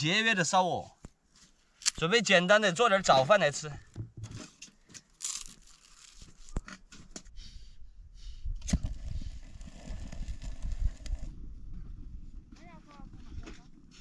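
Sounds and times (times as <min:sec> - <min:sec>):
crinkling and scraping handling sounds: 0:03.0 - 0:07.3
wind rumble on microphone: 0:07.8 - 0:14.0.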